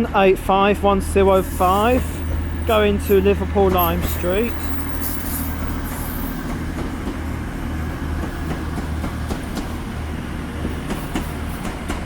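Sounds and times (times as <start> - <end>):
train diesel engine hum: 0.0 - 12.0.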